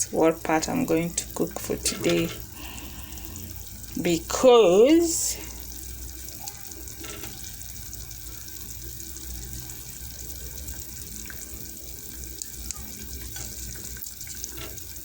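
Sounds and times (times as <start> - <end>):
stew simmering in a pot: 0.0 - 15.0.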